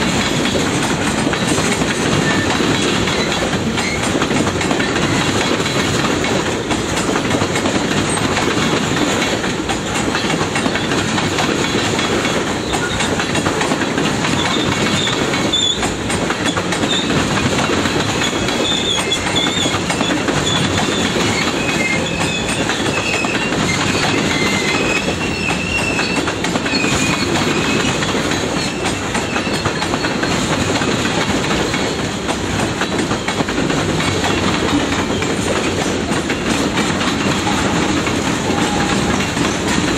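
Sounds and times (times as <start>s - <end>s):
train wheels clicking over rail joints: 0.0s - 39.9s
wheel squeal: 2.1s - 4.1s, 14.4s - 17.2s, 18.2s - 30.9s.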